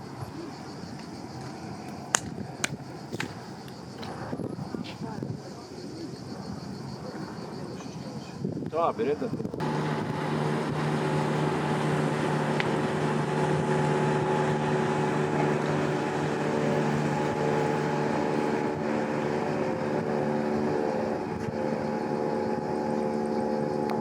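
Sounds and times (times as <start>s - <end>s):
boat engine droning: 9.0s - 24.0s.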